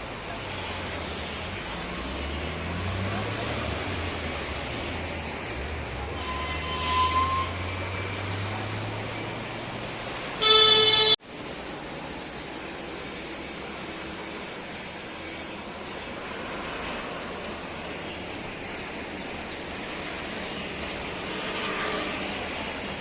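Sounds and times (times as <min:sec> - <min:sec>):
road traffic rumbling: 0:00.0 - 0:23.0
vehicle horn blast: 0:10.4 - 0:11.2.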